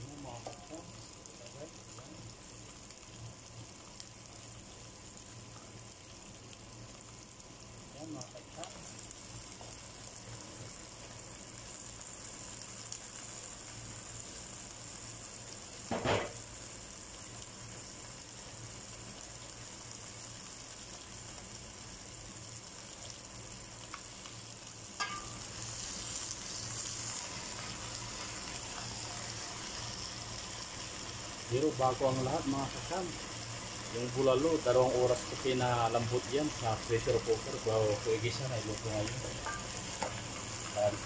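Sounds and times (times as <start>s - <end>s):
meat sizzling in a pot: 0.0s - 41.0s.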